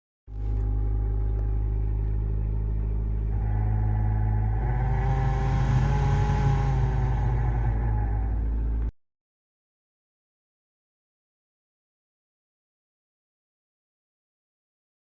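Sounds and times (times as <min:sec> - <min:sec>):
heater blower fan droning: 0:00.3 - 0:08.9
higher whine: 0:00.3 - 0:08.9.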